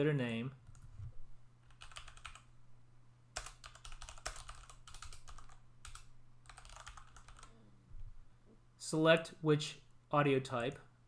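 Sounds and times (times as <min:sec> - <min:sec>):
low steady hum: 0:00.0 - 0:11.0
keyboard typing: 0:01.7 - 0:02.4, 0:03.4 - 0:07.5.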